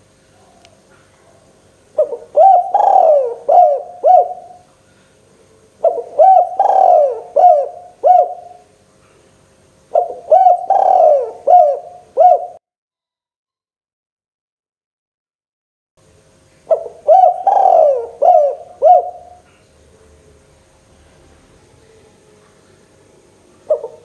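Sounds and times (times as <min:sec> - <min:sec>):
dove cooing: 0:00.4 - 0:04.7, 0:05.8 - 0:08.7, 0:09.9 - 0:12.6, 0:16.7 - 0:19.6, 0:23.5 - 0:24.0.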